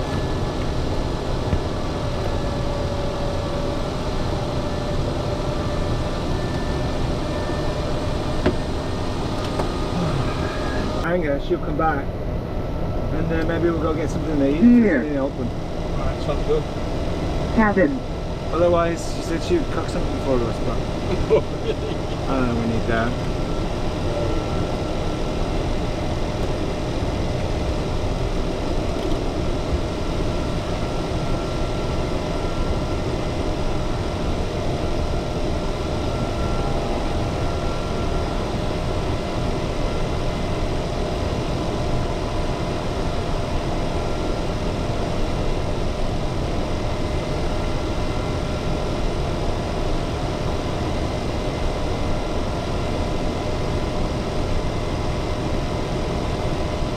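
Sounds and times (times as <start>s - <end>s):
faint whining tones: 0.0s - 16.7s, 18.8s - 42.4s
aircraft cockpit hum and rush: 0.0s - 56.9s.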